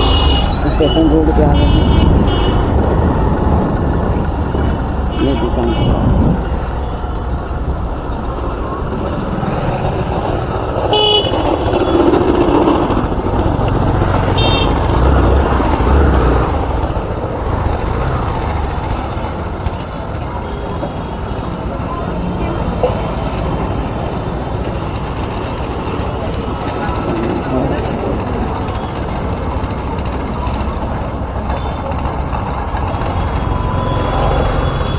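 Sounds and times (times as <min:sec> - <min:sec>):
vehicle horn toots: 0:00.0 - 0:02.7, 0:05.1 - 0:06.3, 0:10.9 - 0:12.0, 0:14.4 - 0:14.9
street traffic: 0:00.0 - 0:34.9.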